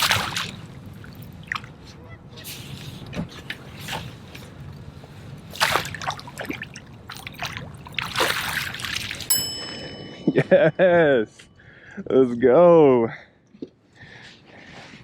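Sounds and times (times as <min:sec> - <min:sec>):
fish thrashing water splashing: 0:00.0 - 0:01.7, 0:05.5 - 0:09.3.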